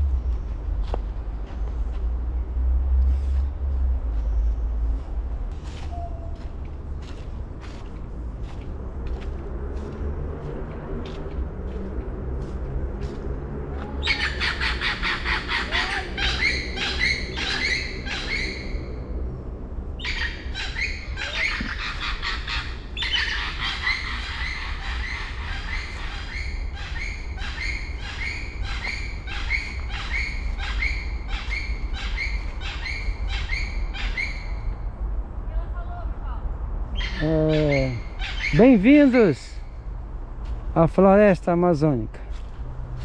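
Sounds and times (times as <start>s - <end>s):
steady low rumble: 0.0s - 38.8s
birds squawking: 13.8s - 19.0s, 20.0s - 34.8s, 36.9s - 39.9s.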